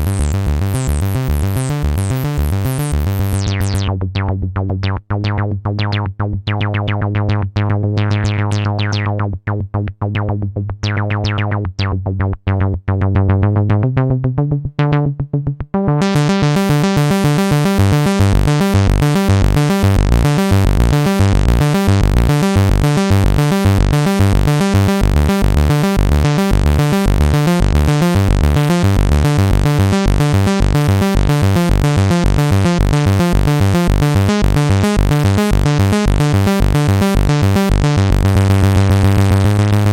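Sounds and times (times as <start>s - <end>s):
synthesizer sequenced pattern: 0.0s - 11.9s, 13.8s - 39.9s
deep synth bass: 0.0s - 39.9s.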